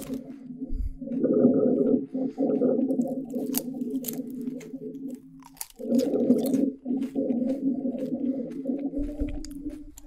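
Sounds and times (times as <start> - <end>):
crunchy chip chewing: 3.0 - 8.2.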